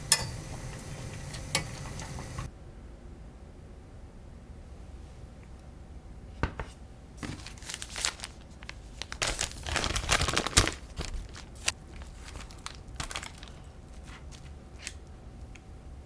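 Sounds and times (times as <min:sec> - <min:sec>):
food packaging crinkling: 0:07.2 - 0:15.1.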